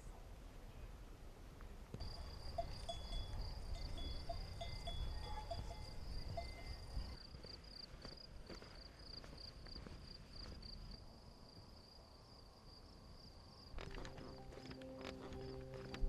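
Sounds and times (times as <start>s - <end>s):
faint clinking notes: 2.0s - 6.8s, 13.8s - 16.0s
crickets chirping: 2.0s - 16.0s.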